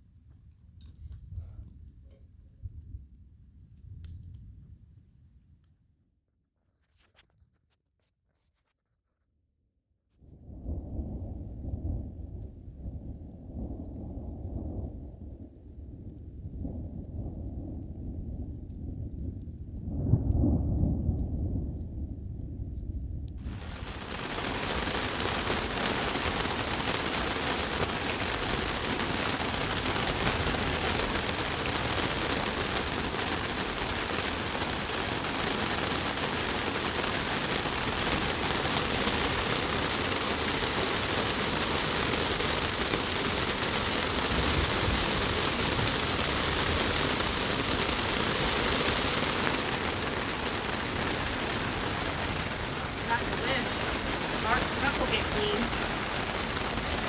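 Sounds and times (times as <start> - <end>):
heavy rain falling: 23.4 - 57.0.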